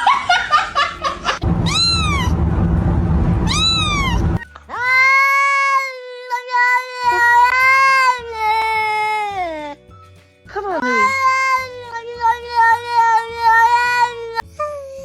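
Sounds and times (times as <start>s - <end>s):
cat meowing: 1.6s - 2.4s, 3.4s - 4.4s.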